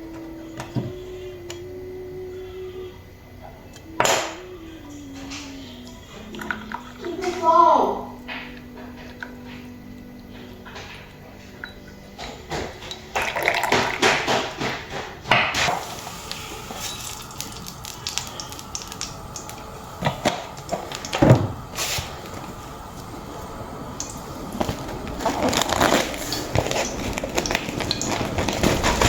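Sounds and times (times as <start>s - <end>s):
clattering and rustling: 8.2s - 17.9s, 24.2s - 29.0s.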